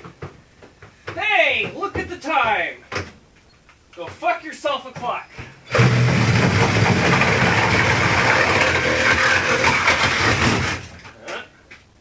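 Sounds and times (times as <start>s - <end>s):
power tool running: 5.7s - 10.8s.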